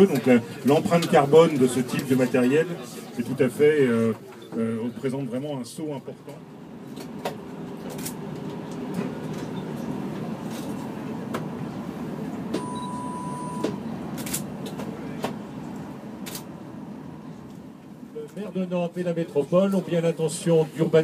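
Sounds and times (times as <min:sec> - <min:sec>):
train rumbling on track: 0:06.4 - 0:19.2
steady beep: 0:12.6 - 0:13.8.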